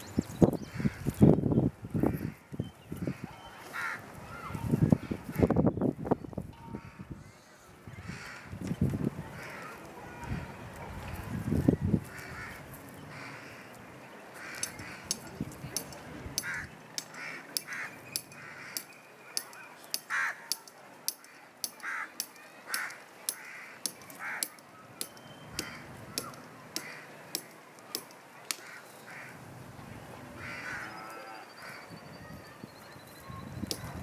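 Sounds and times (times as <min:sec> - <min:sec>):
birds cawing: 0:03.0 - 0:04.6, 0:12.1 - 0:13.8, 0:14.4 - 0:15.2, 0:16.4 - 0:29.4, 0:30.4 - 0:32.0.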